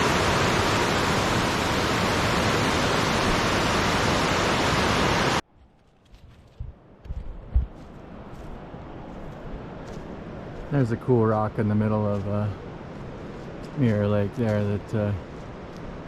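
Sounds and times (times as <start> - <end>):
soft low thumps: 6.4 - 8.0.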